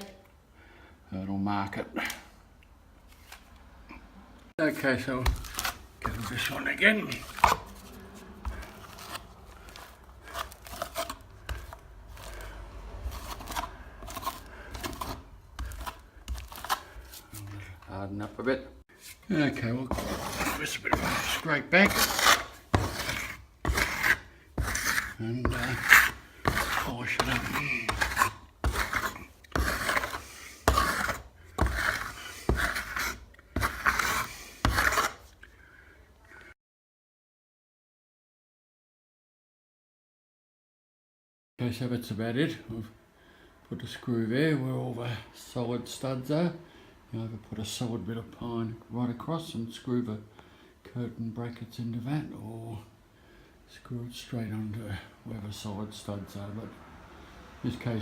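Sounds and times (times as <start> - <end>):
plastering tool scraping wall: 4.7 - 17.4, 18.9 - 35.4.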